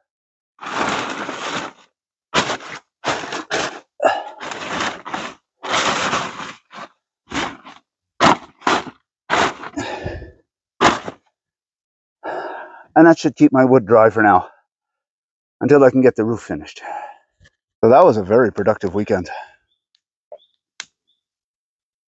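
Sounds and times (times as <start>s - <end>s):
tablecloth rustling and scraping: 0.6s - 9.8s, 10.8s - 11.2s.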